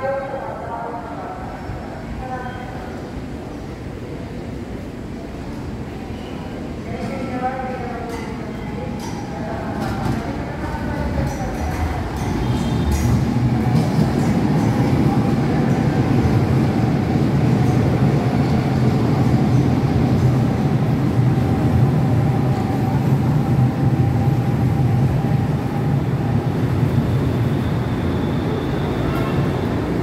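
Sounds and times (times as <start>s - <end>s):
train wheels rumbling on rail: 6.6s - 30.0s.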